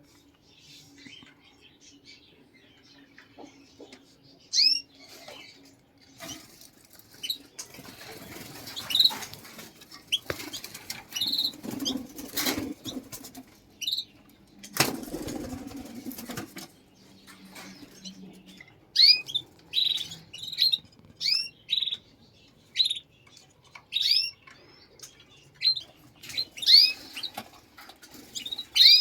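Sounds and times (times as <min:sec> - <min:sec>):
small birds chirping: 0:00.0 - 0:29.0
wings flapping and rustling: 0:06.2 - 0:14.0, 0:14.6 - 0:16.8, 0:26.1 - 0:29.0.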